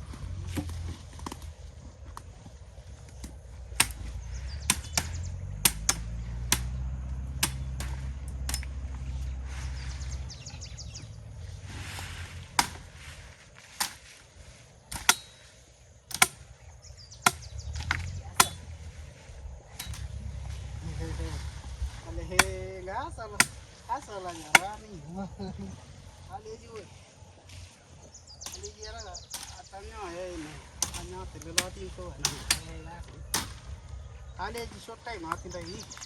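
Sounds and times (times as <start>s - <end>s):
low steady hum: 0.0s - 36.0s
machete chopping vegetation: 3.0s - 19.0s, 19.7s - 21.4s, 22.0s - 24.9s, 28.4s - 29.9s, 30.7s - 34.0s.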